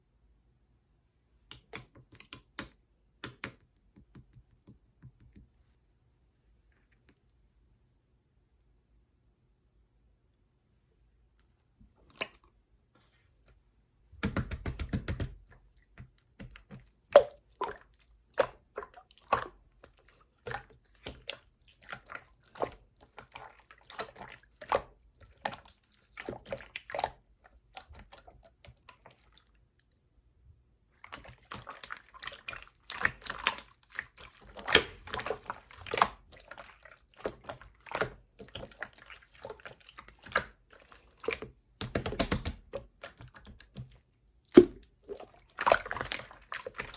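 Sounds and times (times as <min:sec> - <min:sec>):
slime being squished by hand: 0:31.0 - 0:46.9.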